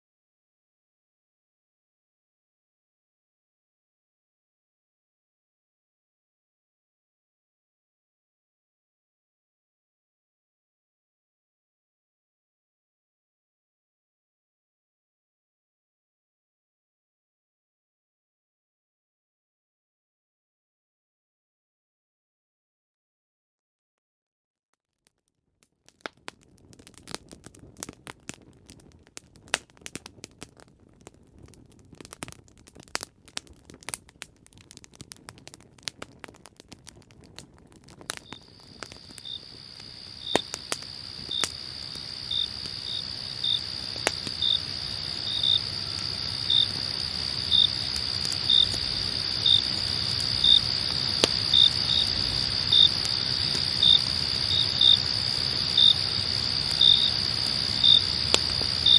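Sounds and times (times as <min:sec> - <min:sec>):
campfire crackling and popping: 0:25.0 - 0:58.9
low fire rumble: 0:25.8 - 0:58.9
crickets trilling: 0:38.0 - 0:58.9.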